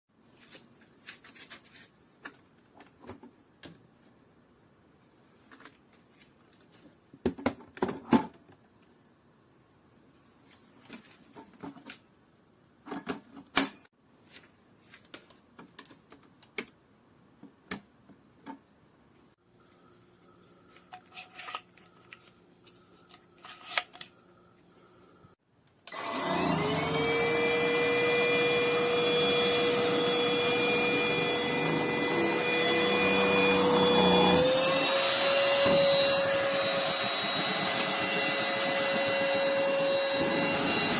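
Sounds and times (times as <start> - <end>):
vacuum motor whine: 25.9 - 40.9.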